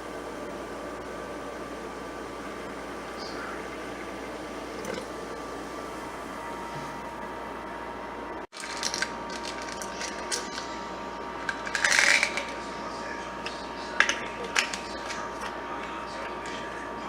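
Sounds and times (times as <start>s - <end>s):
small hard objects clattering: 8.5s - 10.7s, 11.4s - 12.6s.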